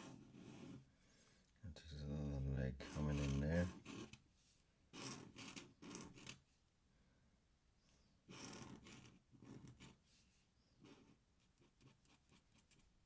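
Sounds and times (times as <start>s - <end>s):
pen scratching on paper: 0.0s - 0.8s, 2.8s - 4.2s, 4.9s - 6.4s, 8.3s - 10.1s, 10.8s - 12.8s.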